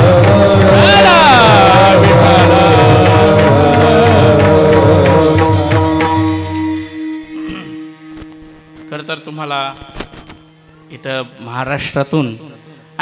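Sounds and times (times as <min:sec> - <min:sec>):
percussion beat: 0:00.0 - 0:08.9
steady drone: 0:00.0 - 0:09.2
ornamented melodic line: 0:00.0 - 0:12.8.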